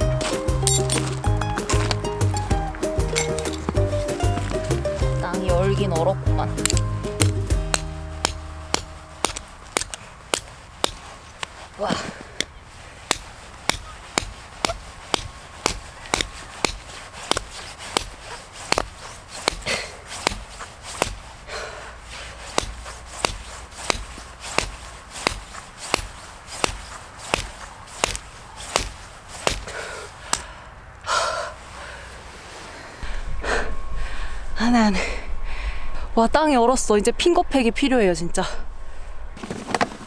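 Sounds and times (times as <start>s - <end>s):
hammer striking tent peg: 0.2s - 11.1s, 13.1s - 21.3s, 22.6s - 30.5s.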